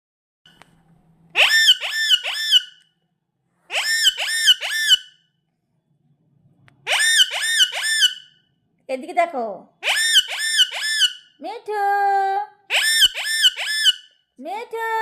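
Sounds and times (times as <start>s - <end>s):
parakeet screeching: 1.4s - 2.8s, 3.7s - 5.2s, 6.8s - 8.4s, 9.8s - 11.4s, 12.7s - 14.2s.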